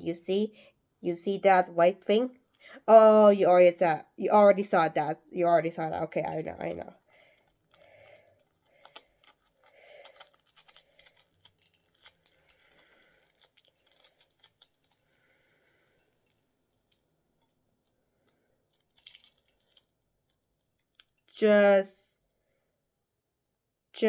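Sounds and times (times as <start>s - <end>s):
egg shell cracking and peeling: 6.9s - 17.7s.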